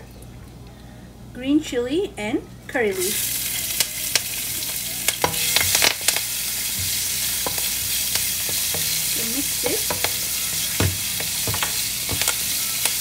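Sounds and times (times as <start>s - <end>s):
chilies sizzling in hot oil: 2.9s - 13.0s
spatula clicking and scraping pan: 3.8s - 13.0s.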